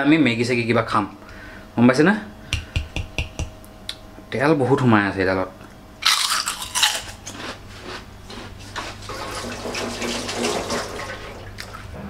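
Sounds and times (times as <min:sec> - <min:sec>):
crunchy bite into snack: 0:06.0 - 0:09.0
crunching while chewing: 0:06.0 - 0:09.3.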